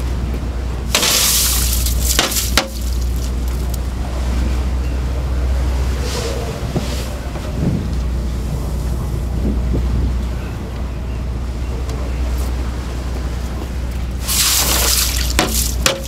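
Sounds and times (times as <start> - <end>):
boat engine drone: 0.0 - 16.0
shovel tipping ice: 1.0 - 2.9, 14.3 - 16.0.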